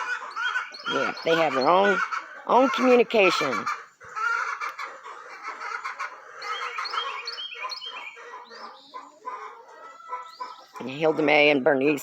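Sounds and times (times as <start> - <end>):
hens chirping and calling: 0.0 - 12.0.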